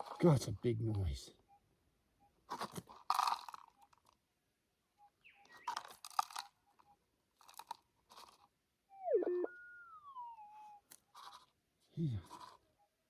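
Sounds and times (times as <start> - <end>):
soil and gravel crunching: 2.4 - 4.2, 5.4 - 8.5
metal detector signal tone: 8.9 - 10.8.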